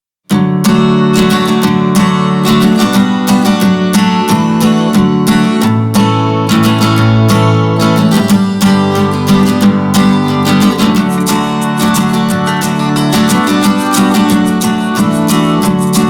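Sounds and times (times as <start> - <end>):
acoustic guitar strummed and plucked: 0.2 - 16.0.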